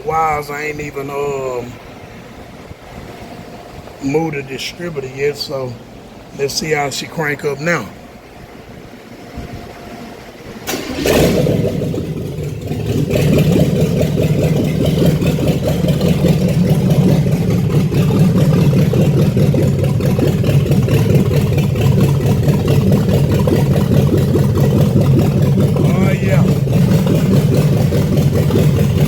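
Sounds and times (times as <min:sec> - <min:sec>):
car engine cranking and running: 0:10.6 - 0:29.0.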